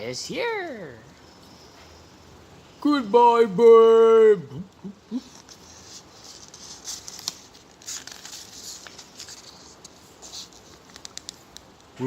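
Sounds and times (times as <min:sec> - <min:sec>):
paper pages rustling: 0:05.2 - 0:11.6.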